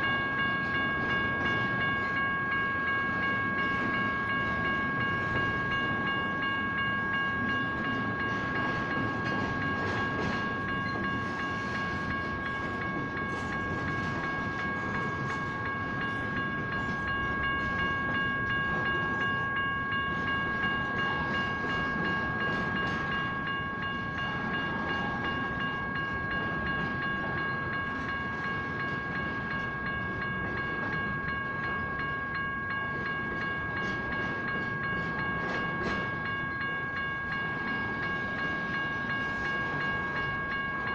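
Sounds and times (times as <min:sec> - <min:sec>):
crossing bell ringing: 0:00.0 - 0:40.9
railcars rumbling: 0:00.0 - 0:40.9.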